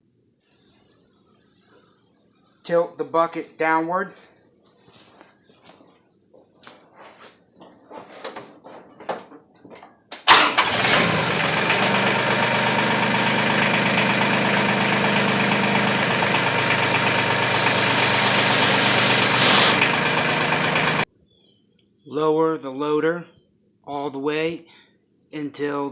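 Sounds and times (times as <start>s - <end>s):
tractor diesel engine running: 10.3s - 21.0s.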